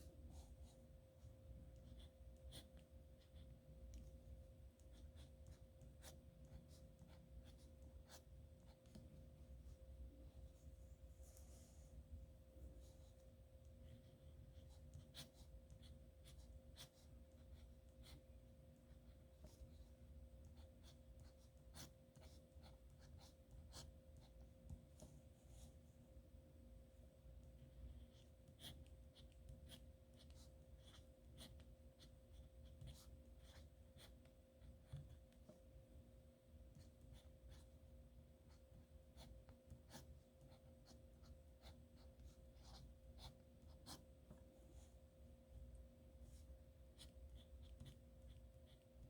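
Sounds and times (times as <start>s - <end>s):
low electrical hum: 0.0s - 49.0s
pen scratching on paper: 1.7s - 4.0s, 4.8s - 9.0s, 13.8s - 18.2s, 18.8s - 25.7s, 27.6s - 35.6s, 36.7s - 37.7s, 38.4s - 44.9s, 47.0s - 48.8s.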